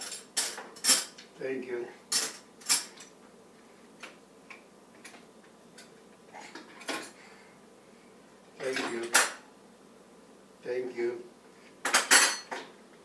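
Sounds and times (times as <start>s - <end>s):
silverware clinking: 0.0s - 1.2s, 11.8s - 12.6s.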